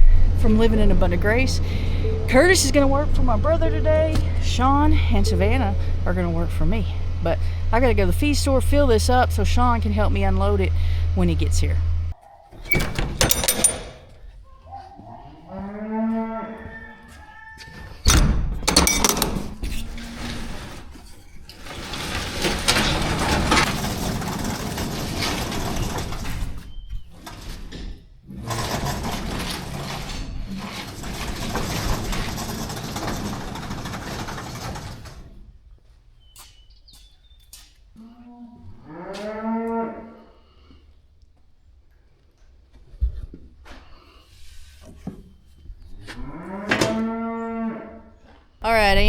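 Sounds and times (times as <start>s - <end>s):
farm animal calling: 14.4s - 18.0s.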